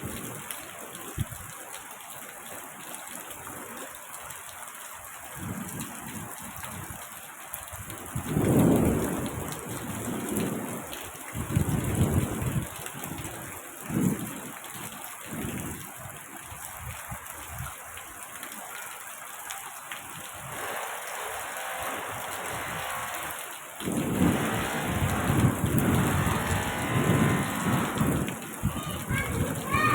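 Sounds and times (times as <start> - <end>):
steady rain falling: 0.0 - 29.9
thunder rumbling: 20.4 - 29.9.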